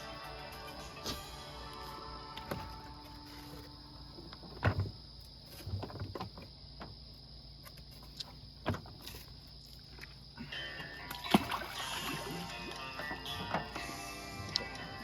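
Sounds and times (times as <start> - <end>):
knocks and thumps: 4.2 - 7.0, 8.6 - 9.2.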